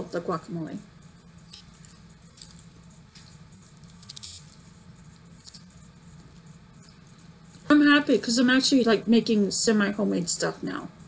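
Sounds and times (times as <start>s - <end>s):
faint steady hum: 0.0s - 11.0s
chips crunching: 2.3s - 4.7s.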